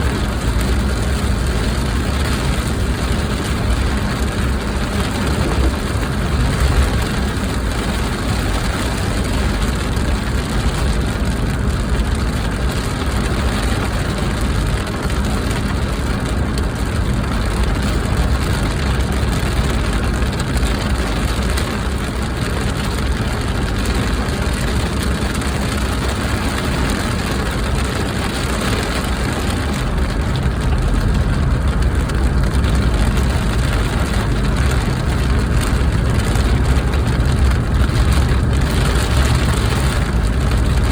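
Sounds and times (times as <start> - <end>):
car engine and road noise: 0.0 - 40.9.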